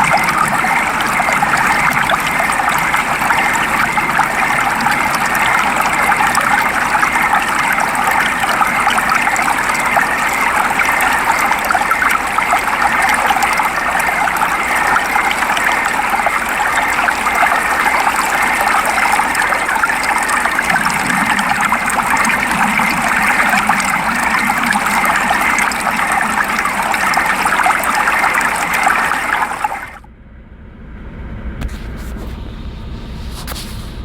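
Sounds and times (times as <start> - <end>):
steady rain: 0.0 - 30.0
low rumble: 30.0 - 34.0.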